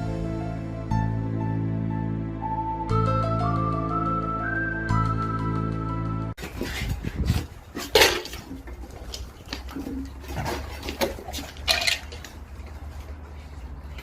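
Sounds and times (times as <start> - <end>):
hard objects clattering: 6.4 - 13.2.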